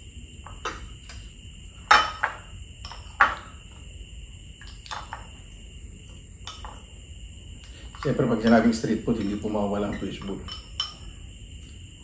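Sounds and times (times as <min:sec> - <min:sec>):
faint high hum: 0:00.0 - 0:12.0.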